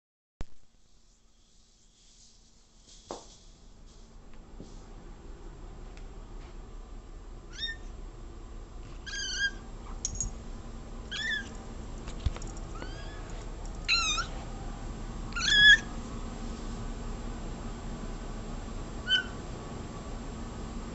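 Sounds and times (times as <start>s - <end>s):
cat meowing: 7.5s - 7.9s, 9.0s - 9.6s, 11.1s - 11.5s, 13.9s - 14.3s, 15.4s - 15.9s.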